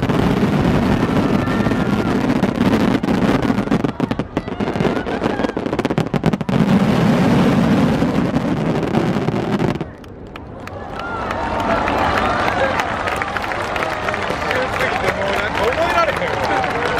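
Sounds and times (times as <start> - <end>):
fireworks crackling: 0.0 - 10.5
murmur of crowd: 0.0 - 16.9.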